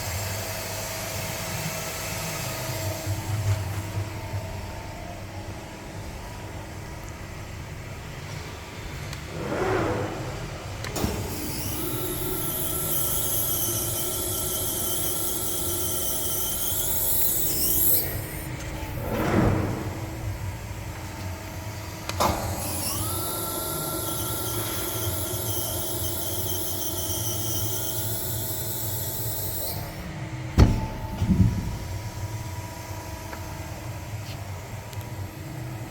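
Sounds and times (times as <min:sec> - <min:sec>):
press brake humming: 0:30.5 - 0:32.3
sharp clunks: 0:30.6 - 0:31.9.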